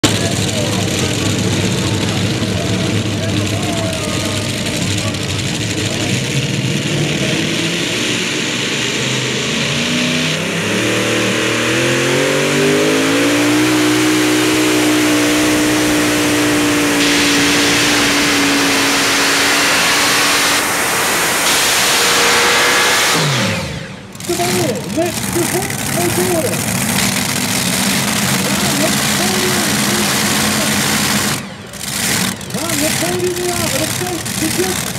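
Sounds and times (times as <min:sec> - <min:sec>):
vehicle engine speeding up: 0:00.0 - 0:34.9
loud rushing noise: 0:06.4 - 0:24.4.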